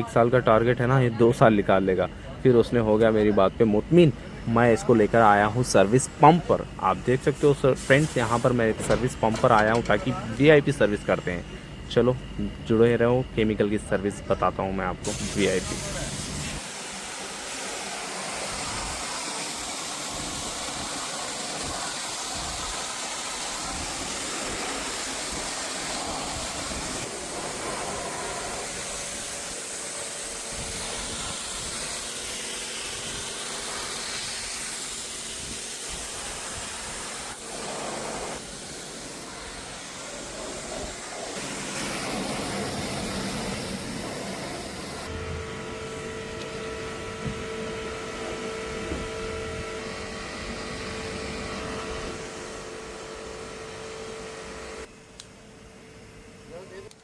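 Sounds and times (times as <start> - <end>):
steady hum: 0.0 - 56.9
high-pressure water jet spraying: 4.8 - 11.3, 15.0 - 45.1.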